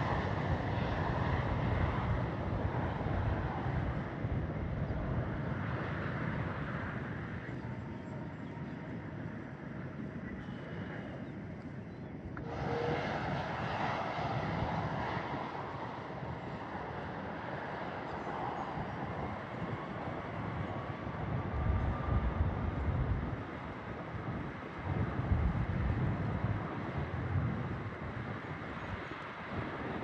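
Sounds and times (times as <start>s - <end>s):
jet engine roar: 0.0s - 8.2s, 12.4s - 30.0s.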